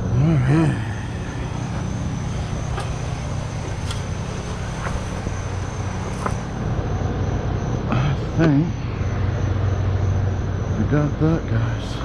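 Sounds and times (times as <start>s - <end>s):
skid steer engine running: 0.0s - 11.4s
faint clicks: 1.0s - 6.5s.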